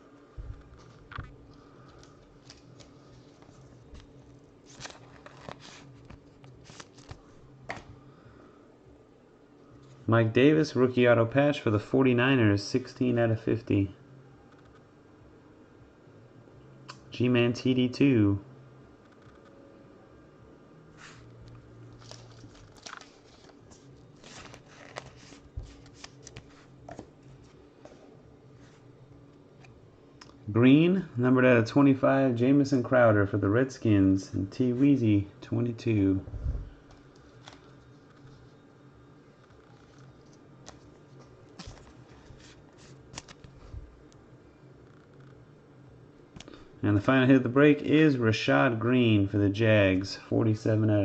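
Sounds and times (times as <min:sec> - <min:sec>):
cards clicking and rustling: 0:00.6 - 0:07.9, 0:21.5 - 0:27.6, 0:36.8 - 0:38.4, 0:39.6 - 0:43.7.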